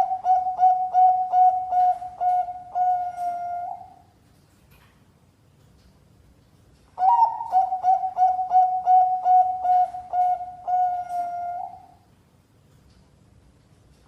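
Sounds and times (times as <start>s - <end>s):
dove cooing: 0.0s - 4.0s, 7.0s - 12.0s.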